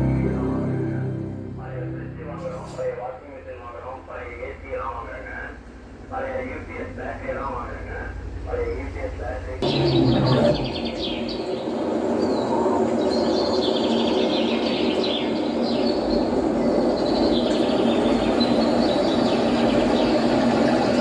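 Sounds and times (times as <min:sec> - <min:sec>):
steady rumbling noise: 0:00.0 - 0:13.4
birds chirping: 0:06.2 - 0:21.0.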